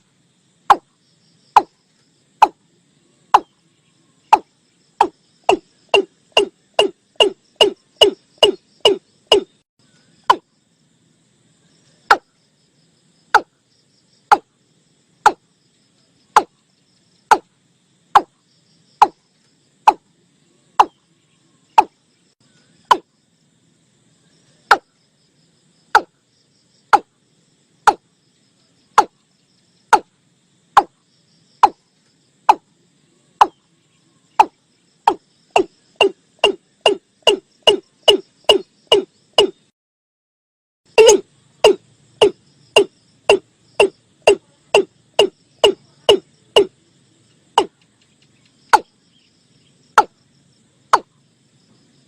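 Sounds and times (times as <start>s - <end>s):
bird calling hollow notes: 2.4s - 2.6s, 3.3s - 3.6s, 4.3s - 9.6s, 12.1s - 12.3s, 13.4s - 13.6s, 14.3s - 14.5s, 16.3s - 16.6s, 18.2s - 18.4s, 20.8s - 21.0s, 21.7s - 22.0s, 22.8s - 23.1s, 24.7s - 24.9s, 26.0s - 26.2s, 26.9s - 27.1s, 34.4s - 39.7s, 40.9s - 46.7s.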